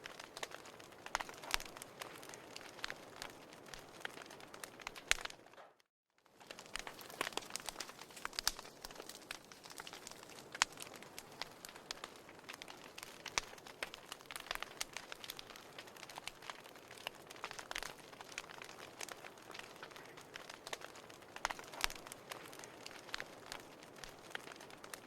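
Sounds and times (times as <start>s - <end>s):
wood fire crackling and popping: 0.0s - 25.0s.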